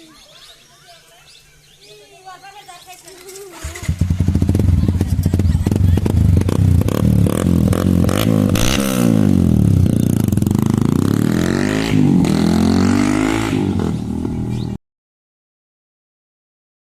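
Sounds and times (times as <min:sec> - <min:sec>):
motorcycle engine revving: 0:03.1 - 0:14.8.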